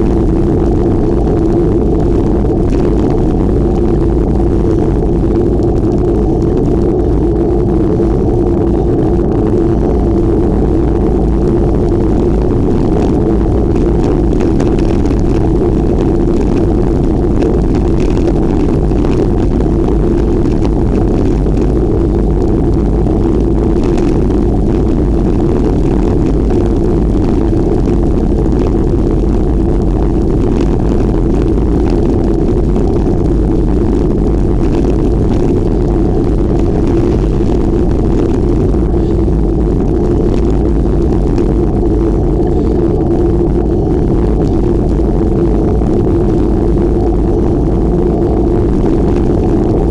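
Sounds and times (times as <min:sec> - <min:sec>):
low drone: 0:00.0 - 0:49.9
wind rushing over microphone: 0:00.0 - 0:49.9.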